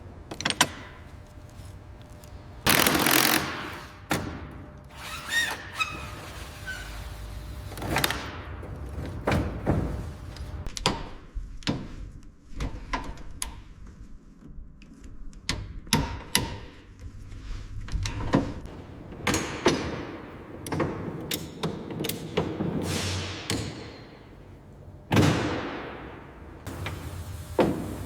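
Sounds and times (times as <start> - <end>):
knocks and clanks: 7.7 - 11.0.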